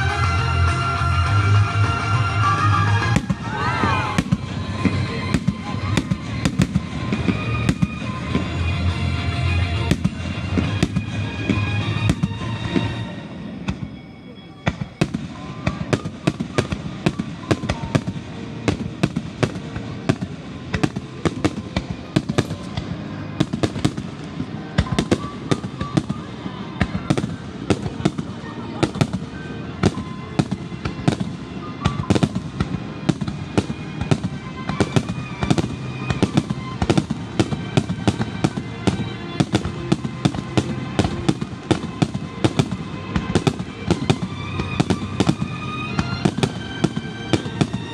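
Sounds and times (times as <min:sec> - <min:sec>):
fireworks bangs: 0:00.0 - 0:47.9.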